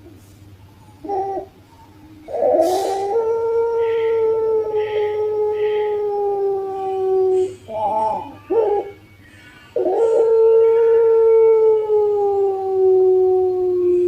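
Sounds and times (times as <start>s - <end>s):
dove cooing: 0.6s - 6.0s.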